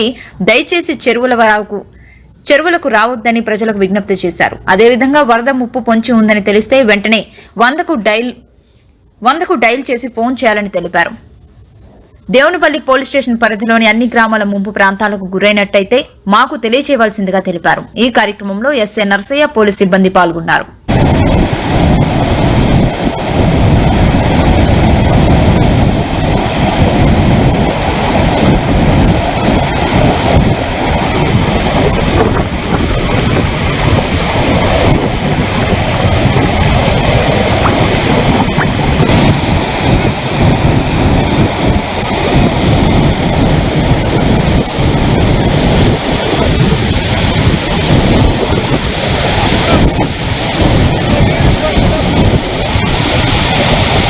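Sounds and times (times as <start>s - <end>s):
floodwater rushing: 20.9s - 54.0s.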